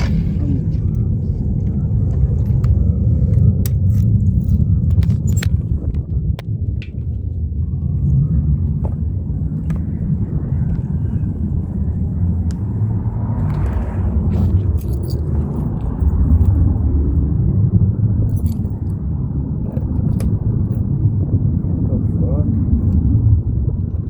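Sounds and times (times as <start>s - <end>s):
motorcycle engine rumble: 0.0s - 17.4s
wind on microphone: 0.0s - 24.0s.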